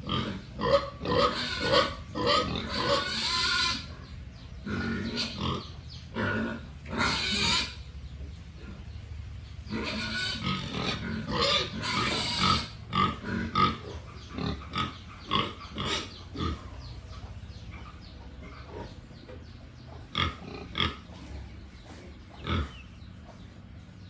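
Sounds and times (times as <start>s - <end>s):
pigs grunting: 0.0s - 9.0s, 9.6s - 24.0s.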